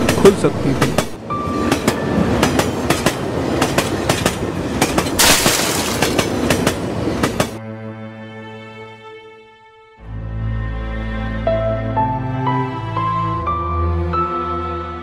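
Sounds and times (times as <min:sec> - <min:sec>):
train rumbling on track: 0:00.0 - 0:07.6
wheels clacking over rail joints: 0:00.0 - 0:07.6.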